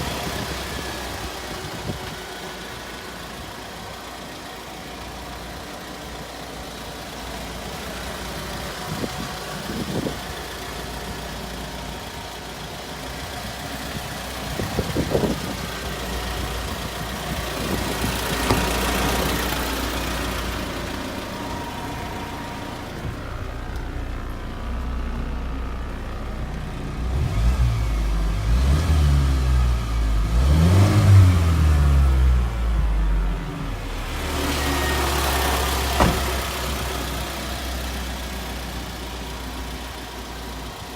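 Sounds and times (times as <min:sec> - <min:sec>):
truck engine idling: 0:00.0 - 0:27.2, 0:31.2 - 0:40.9
engine knocks: 0:11.6 - 0:25.0, 0:33.5 - 0:39.1
truck engine revving: 0:27.0 - 0:38.0.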